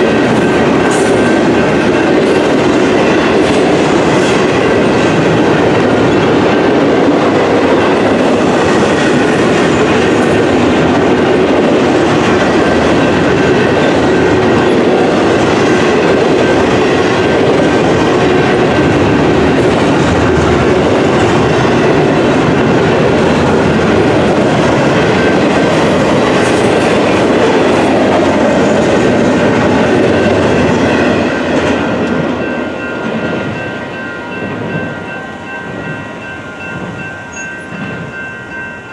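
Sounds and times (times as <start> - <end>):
freight train cars rumbling: 0.0 - 38.9
thin high ringing tones: 32.4 - 38.9.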